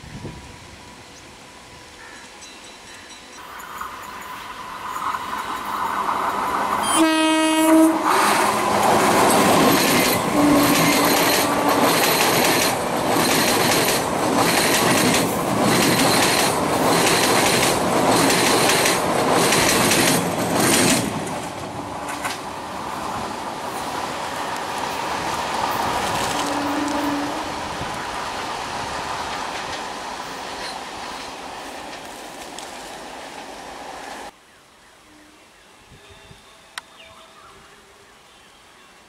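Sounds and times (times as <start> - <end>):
train horn blast: 6.8 - 8.8, 10.2 - 11.9, 26.3 - 27.6
train wheels clattering: 8.1 - 22.5.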